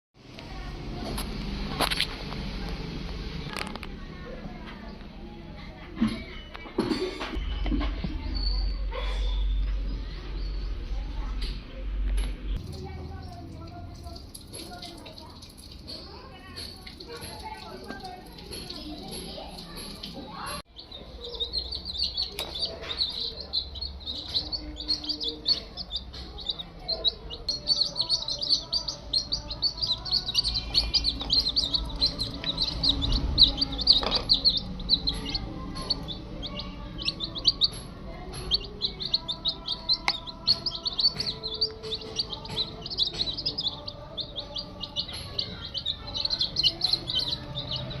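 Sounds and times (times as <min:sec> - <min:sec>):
chicks peeping: 0:18.4 - 0:48.0.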